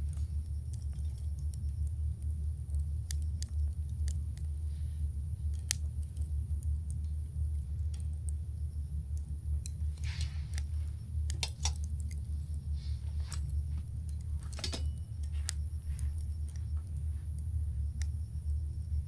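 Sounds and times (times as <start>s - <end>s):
campfire crackling: 0.0s - 19.0s
low rumble: 0.0s - 19.0s
hissing crackles: 9.2s - 14.6s.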